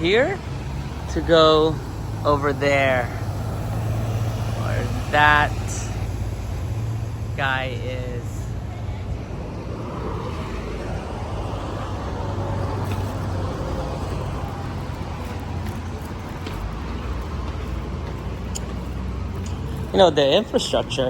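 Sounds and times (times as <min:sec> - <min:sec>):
cars passing on a street: 0:00.0 - 0:21.0.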